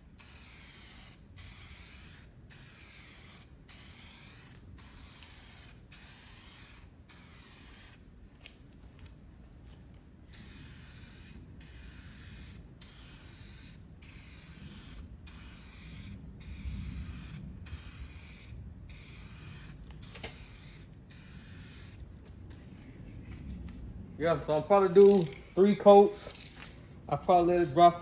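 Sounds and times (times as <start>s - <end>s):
spray gun hissing: 0.0s - 8.1s, 10.3s - 22.0s.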